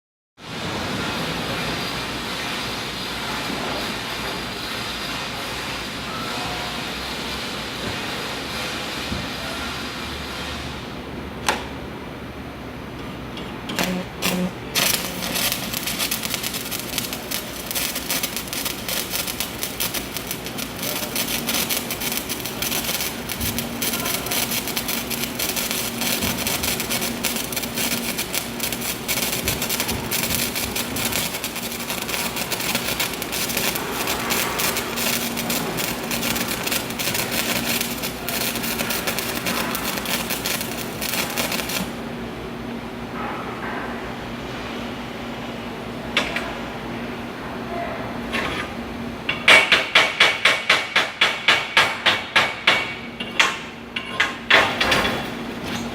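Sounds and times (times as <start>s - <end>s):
arc welding crackle: 13.7s - 42.0s.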